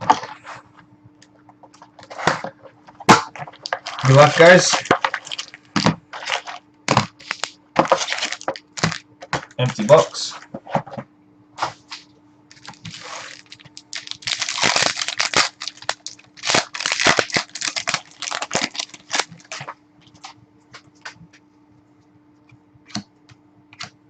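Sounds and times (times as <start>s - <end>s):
card packaging crinkling and tearing: 3.1s - 9.0s, 12.5s - 20.3s.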